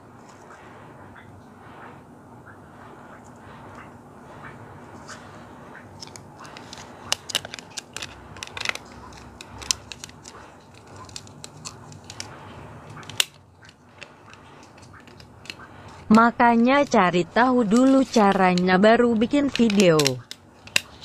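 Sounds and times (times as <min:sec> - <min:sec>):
plastic pieces clicking and crackling: 0:06.0 - 0:12.3, 0:12.9 - 0:16.0, 0:17.6 - 0:21.0.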